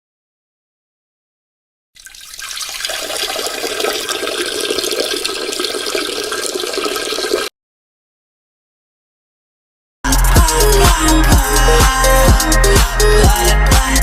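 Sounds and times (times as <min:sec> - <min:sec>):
water gurgling rush: 0:02.0 - 0:07.5.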